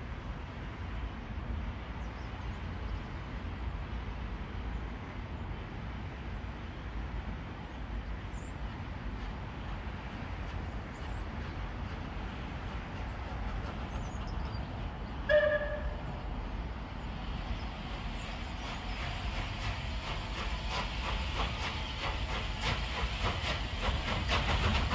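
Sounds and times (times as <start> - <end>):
steam locomotive whistle toot: 15.2 - 16.2.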